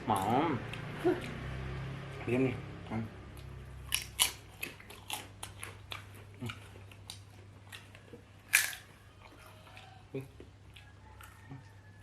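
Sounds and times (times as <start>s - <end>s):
chewing with mouth smacks: 3.3s - 11.8s.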